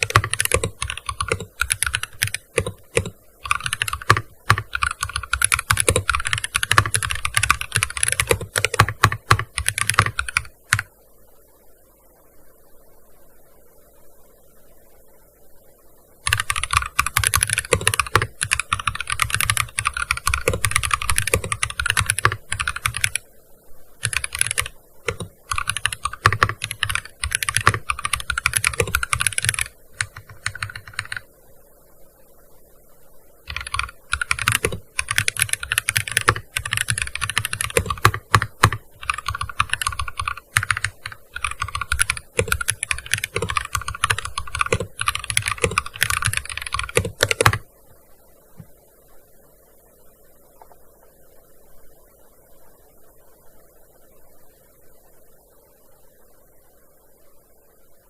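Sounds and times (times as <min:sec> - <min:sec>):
fast keyboard typing: 0:00.0 - 0:10.9, 0:16.2 - 0:23.2, 0:24.0 - 0:31.3, 0:33.5 - 0:47.6.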